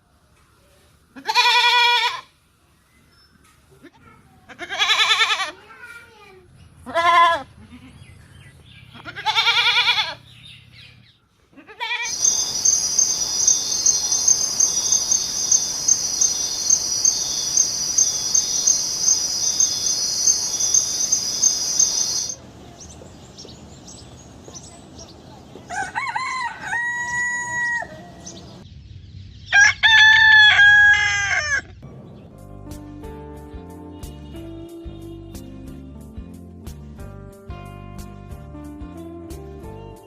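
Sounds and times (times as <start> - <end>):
goat bleating: 1.2 - 2.3, 4.5 - 5.6, 6.8 - 8.1, 8.9 - 10.2, 11.6 - 12.2
crickets chirping: 12.0 - 22.5.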